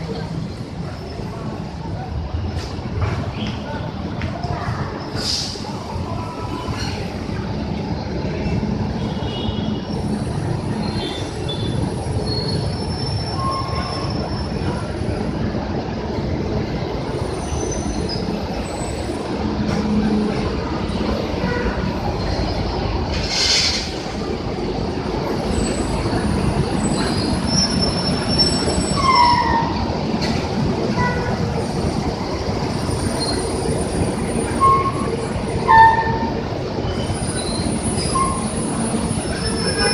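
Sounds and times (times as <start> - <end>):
bus engines droning: 0.0 - 39.9
high-pitched brake squeals: 9.1 - 14.9, 17.3 - 19.1, 26.8 - 29.8, 32.8 - 39.9.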